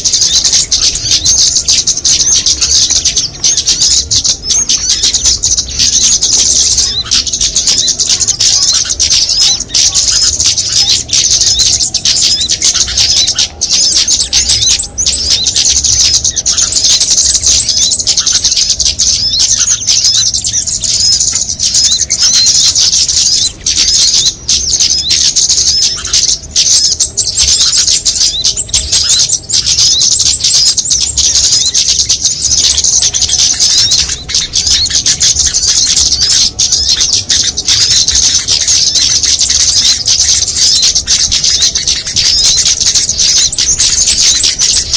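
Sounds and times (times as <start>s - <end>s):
songbirds chirping and twittering: 0.0s - 44.9s.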